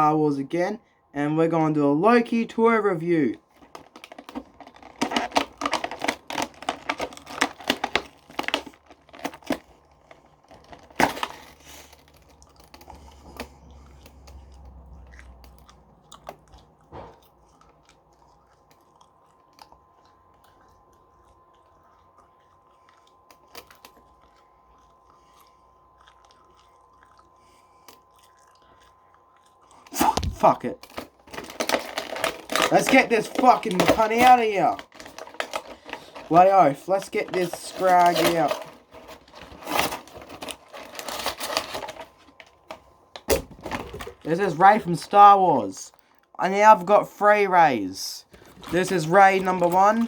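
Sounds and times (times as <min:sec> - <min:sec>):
packaging crackling and tearing: 0:03.4 - 0:15.6, 0:29.9 - 0:45.8, 0:48.2 - 0:50.0.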